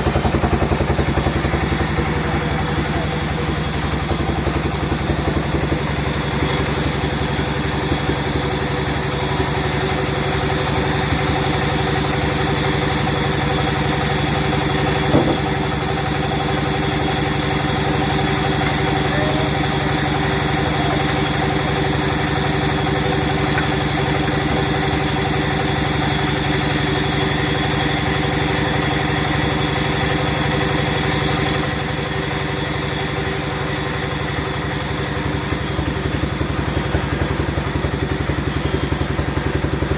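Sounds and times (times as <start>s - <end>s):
sawmill machinery drone: 0.0s - 39.9s
short knock: 15.1s - 15.5s.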